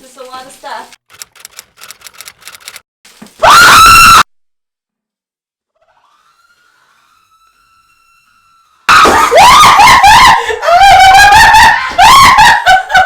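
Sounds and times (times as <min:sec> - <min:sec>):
woman screaming: 0:03.4 - 0:04.2, 0:08.9 - 0:12.5.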